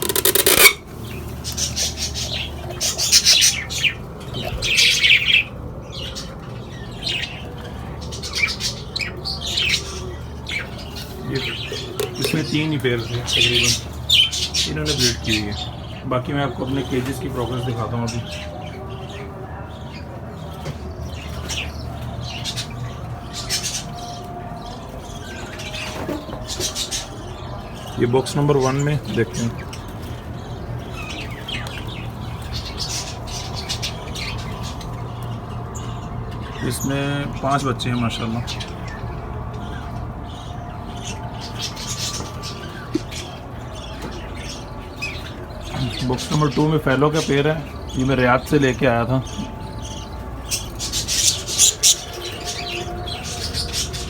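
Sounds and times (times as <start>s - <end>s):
budgerigars chirping and squawking: 0.0s - 54.0s.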